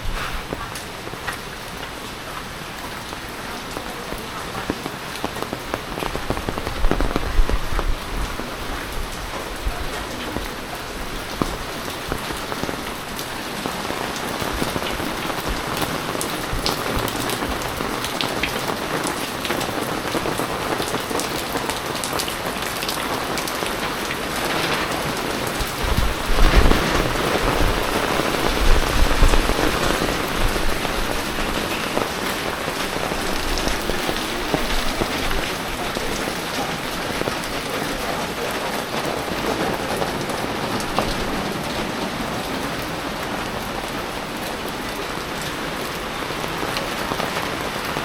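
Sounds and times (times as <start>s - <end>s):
heavy rain falling: 0.0s - 48.0s
raindrops ticking on surfaces: 0.0s - 48.0s.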